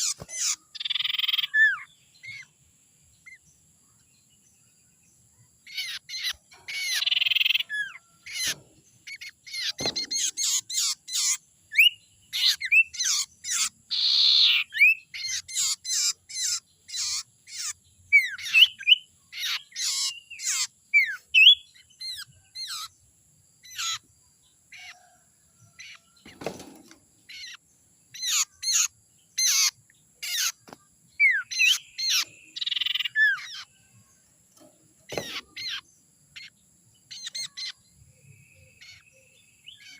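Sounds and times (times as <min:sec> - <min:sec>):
bird chirps and whistles: 0:09.6 - 0:22.9
soft thumps: 0:34.6 - 0:35.5.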